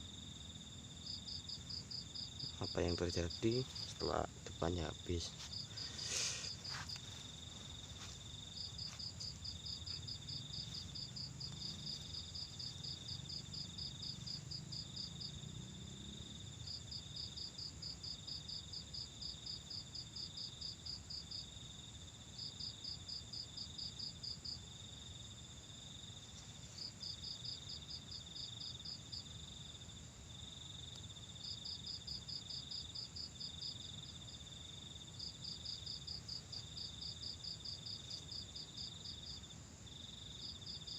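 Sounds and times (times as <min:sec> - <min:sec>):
crickets chirping: 0:00.0 - 0:40.9
high insect buzz: 0:00.1 - 0:18.0.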